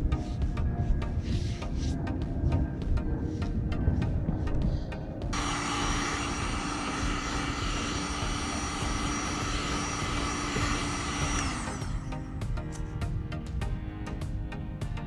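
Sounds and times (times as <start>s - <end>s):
heat gun fan whining: 5.4s - 13.2s.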